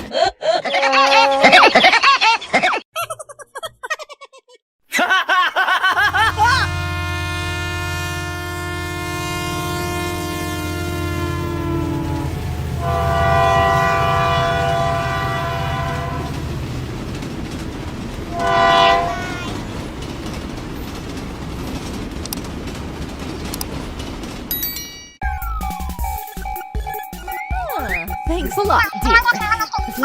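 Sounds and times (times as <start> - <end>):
train rumbling: 5.9 - 30.0
train horn blasts: 6.1 - 16.4, 18.3 - 19.3.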